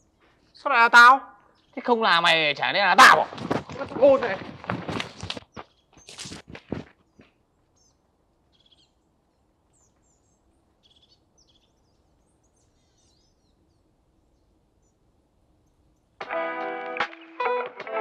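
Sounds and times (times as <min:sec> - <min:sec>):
faint background hum: 0:05.6 - 0:16.2.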